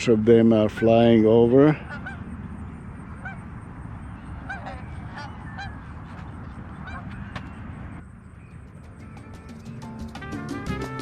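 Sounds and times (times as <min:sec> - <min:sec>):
steady low rumble: 0:00.0 - 0:09.0
geese honking: 0:00.3 - 0:08.0.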